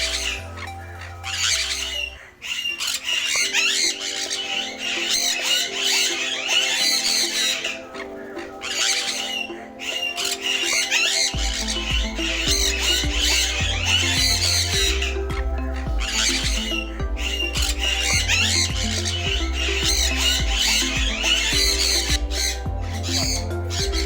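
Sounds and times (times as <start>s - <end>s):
background music of held notes: 0.0s - 24.0s
parrots squawking and chattering: 0.0s - 24.0s
deep bass: 11.4s - 24.0s.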